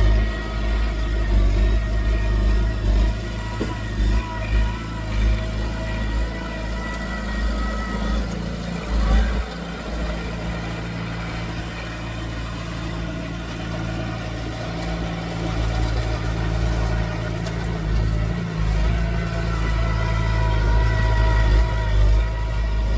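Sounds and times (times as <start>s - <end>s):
heavy diesel machinery running: 0.0s - 22.9s.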